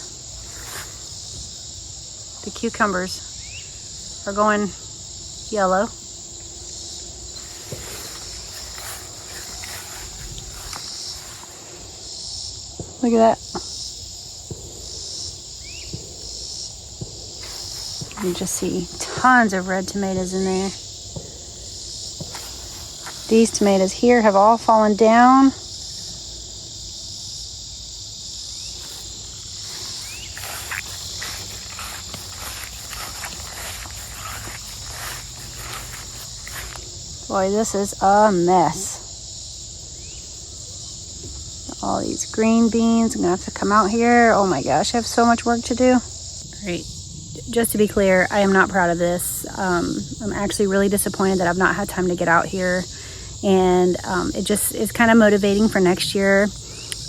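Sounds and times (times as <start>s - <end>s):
footsteps through tall weeds: 0.0s - 1.4s, 7.2s - 12.0s, 17.4s - 19.0s, 22.1s - 23.7s, 28.6s - 37.3s
plants rustling underfoot: 0.0s - 1.4s, 7.2s - 12.0s, 17.4s - 19.5s, 22.2s - 24.5s, 28.6s - 38.0s
crickets chirping: 0.0s - 57.0s
insect chorus: 0.0s - 57.0s.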